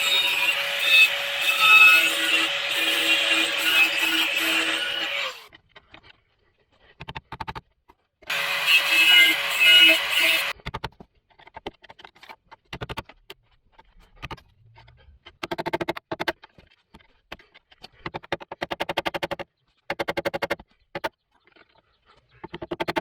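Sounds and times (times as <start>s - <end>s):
power tool cutting sheet metal: 0.0s - 5.5s, 8.3s - 10.6s.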